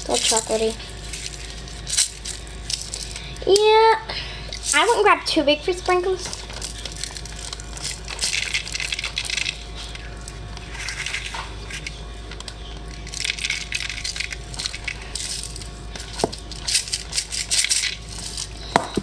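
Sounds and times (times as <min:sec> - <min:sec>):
sprinkles rattling in container: 0:00.1 - 0:03.3, 0:06.2 - 0:10.0, 0:10.7 - 0:11.9, 0:12.9 - 0:18.6.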